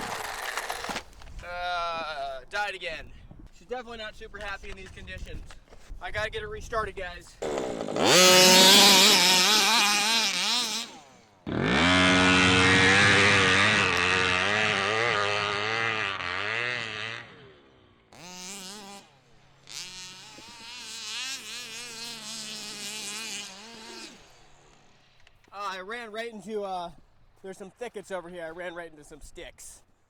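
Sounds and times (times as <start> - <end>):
two-stroke engine revving: 0.0 - 1.0, 7.4 - 25.5.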